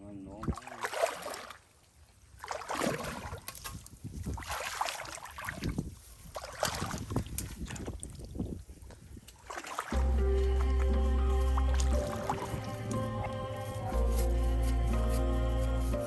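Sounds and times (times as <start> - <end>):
mud and water squelching: 0.3 - 16.0.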